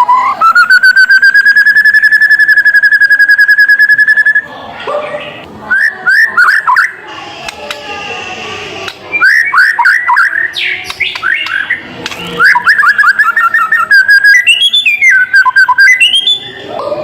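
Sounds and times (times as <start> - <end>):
bird trilling: 8.8 - 16.7
swooping bird whistles: 9.1 - 16.7.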